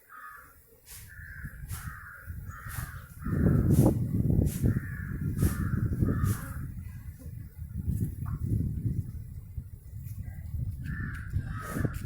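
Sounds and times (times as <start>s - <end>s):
crow cawing: 0.1s - 3.6s, 4.7s - 6.6s, 10.9s - 12.0s.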